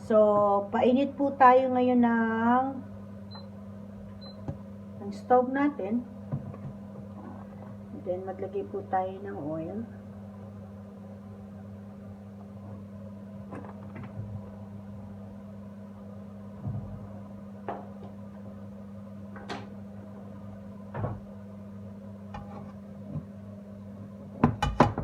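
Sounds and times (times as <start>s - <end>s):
steady low hum: 0.0s - 25.0s
cookware knocks and clunks: 24.4s - 25.0s.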